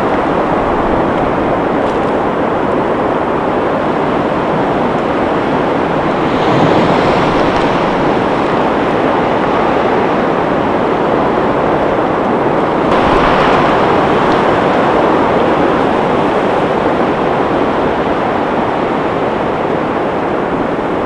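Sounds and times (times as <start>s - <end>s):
blizzard wind gusting: 0.0s - 21.0s.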